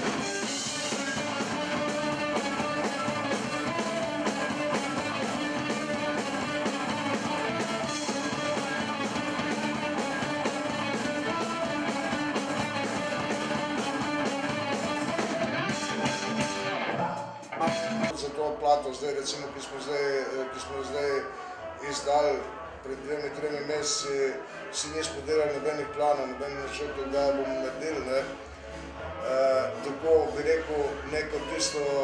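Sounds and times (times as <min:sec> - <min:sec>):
drum kit beat: 0:00.0 - 0:18.2
strummed guitars: 0:00.0 - 0:18.2.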